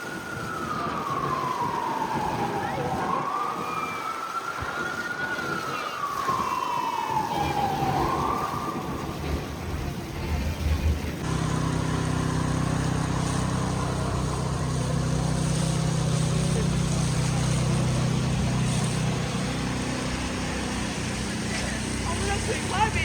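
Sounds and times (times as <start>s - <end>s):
siren wailing: 0.0s - 10.2s, 11.2s - 23.0s
low engine hum: 9.2s - 23.0s.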